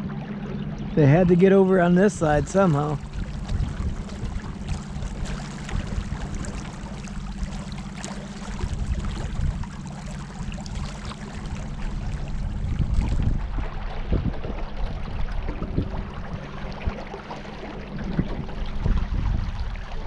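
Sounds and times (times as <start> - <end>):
small boat motor running: 0.0 - 20.0
water splashing along hull: 0.0 - 20.0.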